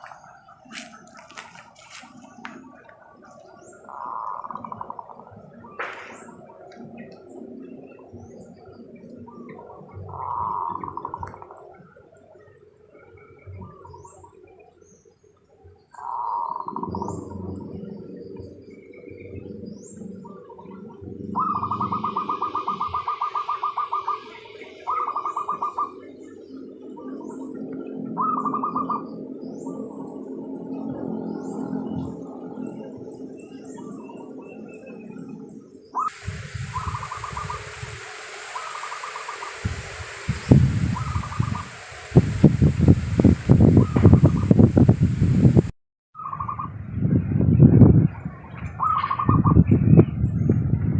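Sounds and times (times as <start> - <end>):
dove cooing: 0.0 - 12.0, 16.0 - 30.0, 36.0 - 41.9
small birds chirping: 0.0 - 45.4
low rumbling wind: 0.0 - 50.9.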